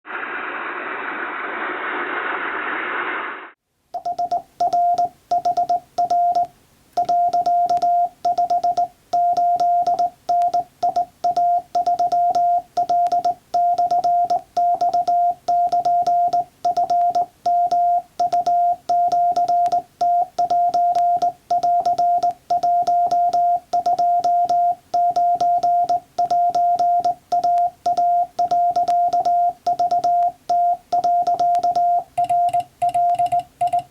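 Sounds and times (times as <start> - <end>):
hiss-like noise: 0.1 - 3.6
morse code beeps: 4.0 - 33.9.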